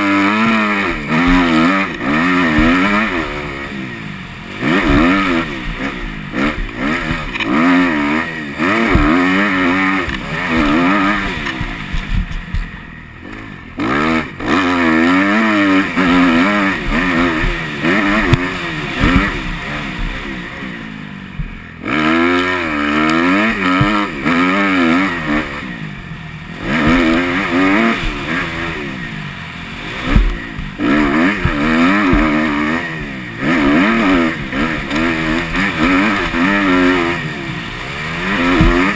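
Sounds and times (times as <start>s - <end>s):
motocross bike engine revving: 0.0s - 38.9s
thuds: 1.1s - 1.9s, 2.5s - 3.1s, 8.8s - 12.8s, 16.8s - 20.3s, 21.3s - 21.6s, 30.0s - 36.4s, 38.4s - 38.9s.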